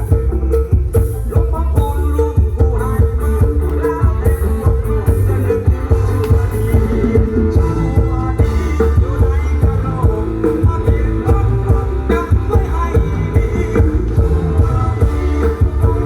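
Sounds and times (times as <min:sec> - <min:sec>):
person singing: 0:00.0 - 0:16.0
rock band music: 0:00.0 - 0:16.0.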